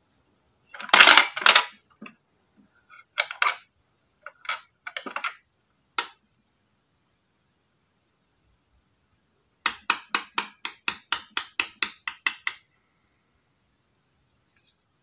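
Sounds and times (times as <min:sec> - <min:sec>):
toy vending machine clicks and rattles: 0:00.8 - 0:02.0, 0:03.0 - 0:05.4.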